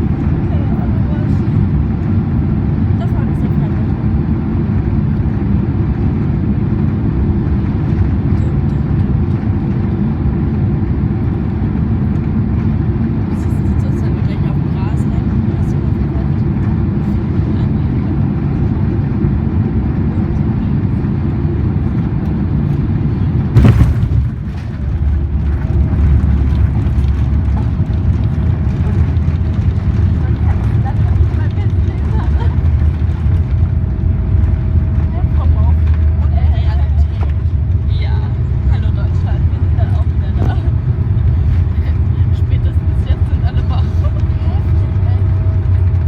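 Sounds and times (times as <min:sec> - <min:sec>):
airliner cabin rumble: 0:00.0 - 0:46.0
landing gear thump: 0:23.5 - 0:24.9.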